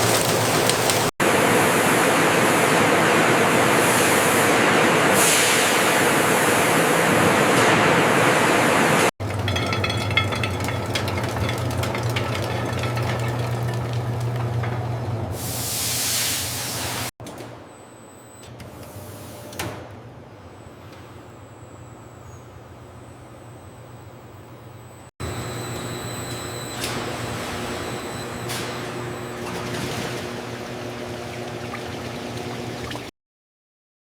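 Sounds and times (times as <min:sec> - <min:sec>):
machine hum: 0:20.4 - 0:33.1.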